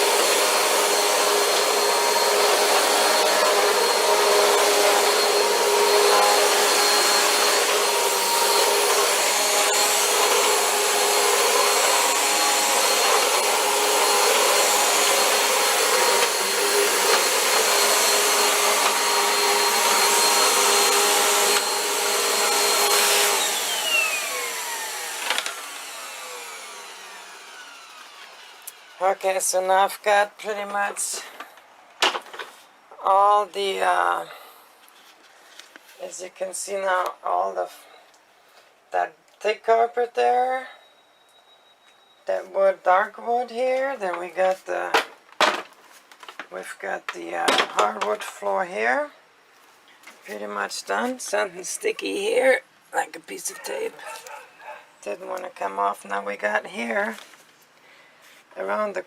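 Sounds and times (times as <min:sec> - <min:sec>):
vacuum cleaner on carpet: 0:00.0 - 0:29.8
motor winding down: 0:02.3 - 0:28.9.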